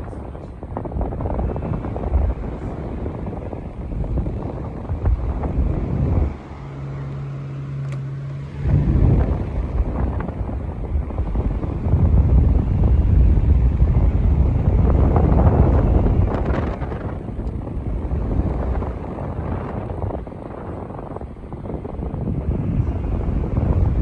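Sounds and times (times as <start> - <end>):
fan airflow buffeting microphone: 0.0 - 24.0
low motor hum: 0.0 - 24.0.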